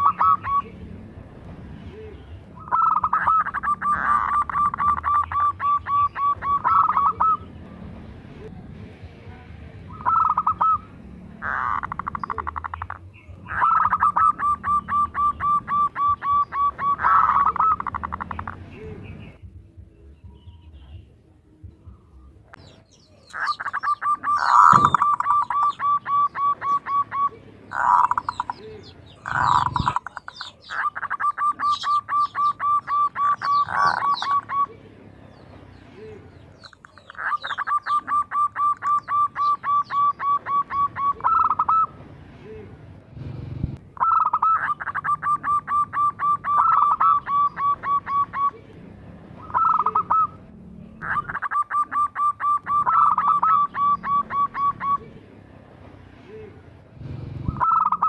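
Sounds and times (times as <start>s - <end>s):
dove cooing: 0.0s - 0.8s, 1.9s - 7.5s, 9.9s - 19.2s, 23.1s - 34.9s, 36.0s - 42.7s, 44.0s - 48.7s, 49.4s - 55.3s, 57.5s - 58.0s
small birds chirping: 0.0s - 1.2s, 1.8s - 55.5s.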